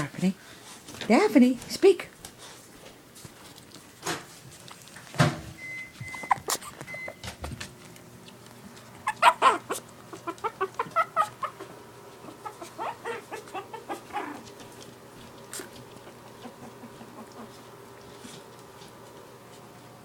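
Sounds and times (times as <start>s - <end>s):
puppies squeaking and whimpering: 5.6s - 7.4s, 8.8s - 14.6s.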